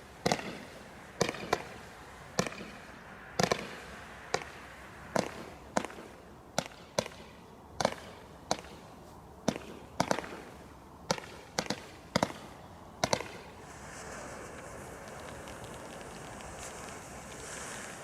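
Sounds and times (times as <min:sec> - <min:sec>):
bonfire cracking with sharp bangs: 0:00.0 - 0:08.8, 0:09.5 - 0:18.0
steady rushing hiss: 0:00.0 - 0:18.0.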